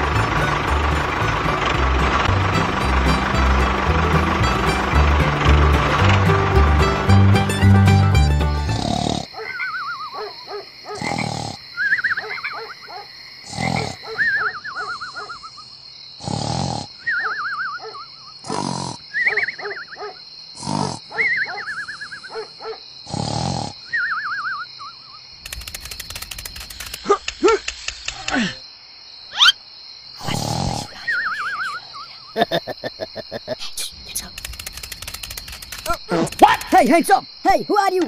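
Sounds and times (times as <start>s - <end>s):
cartoon snoring with whistle: 8.6s - 10.1s, 11.0s - 12.2s, 13.4s - 15.6s, 16.2s - 20.0s, 20.6s - 22.3s, 23.0s - 24.9s, 30.2s - 32.1s.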